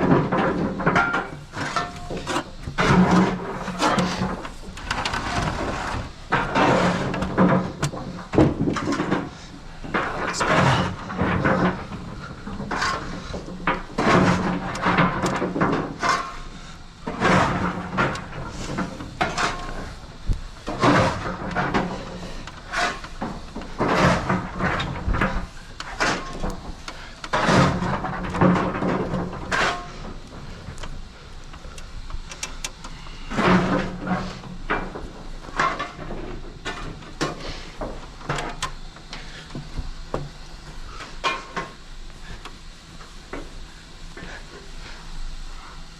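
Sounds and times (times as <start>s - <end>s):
knocks clanks and scrapes: 0.0s - 42.5s.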